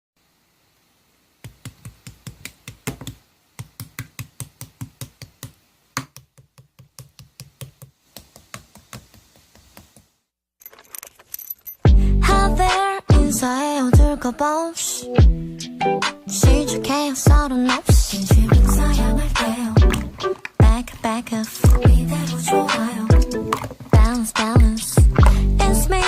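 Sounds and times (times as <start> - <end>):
pop song playing loudly: 11.9 - 26.0.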